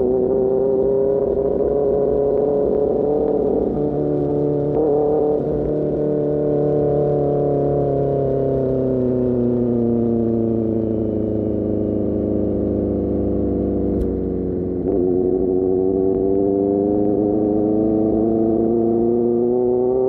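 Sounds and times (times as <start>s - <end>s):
motorcycle engine decelerating: 0.0s - 20.0s
click: 13.9s - 14.1s.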